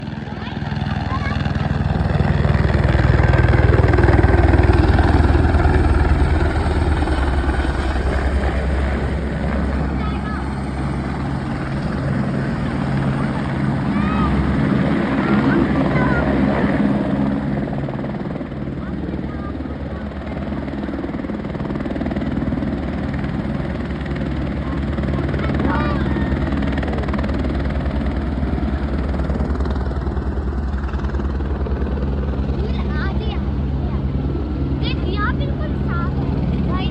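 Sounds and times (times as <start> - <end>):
pulsing engine drone: 0.0 - 36.9.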